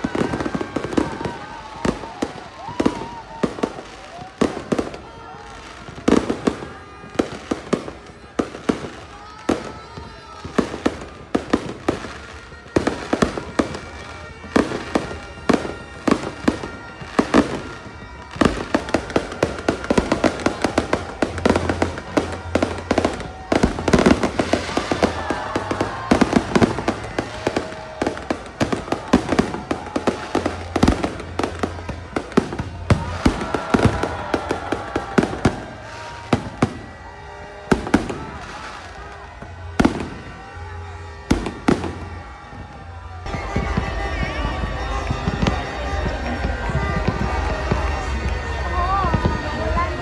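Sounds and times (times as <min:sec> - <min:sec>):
fireworks bangs and crackles: 0:00.0 - 0:50.0
music playing: 0:10.8 - 0:50.0.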